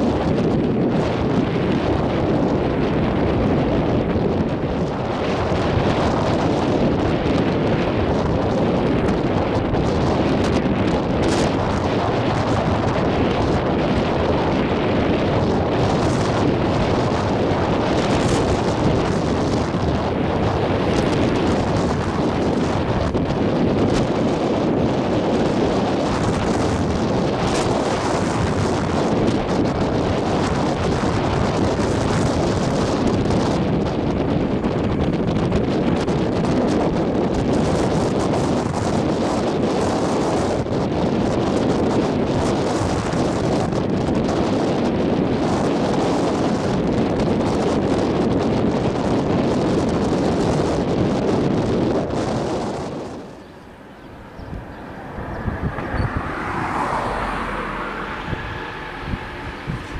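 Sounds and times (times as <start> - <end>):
wind buffeting microphone: 0.0 - 59.9
freight train passing: 52.8 - 59.9.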